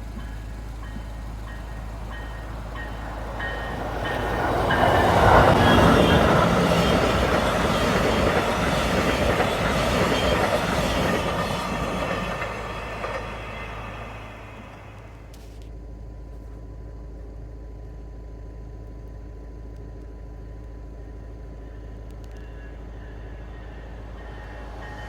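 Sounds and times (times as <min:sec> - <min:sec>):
train passing by: 0:00.0 - 0:15.6, 0:21.0 - 0:25.0.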